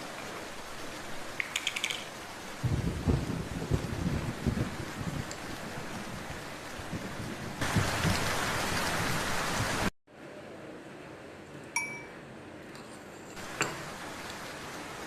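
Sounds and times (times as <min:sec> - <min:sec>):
heavy rain hissing: 0:00.0 - 0:09.9, 0:13.4 - 0:15.0
short ringing clink: 0:11.8 - 0:12.2.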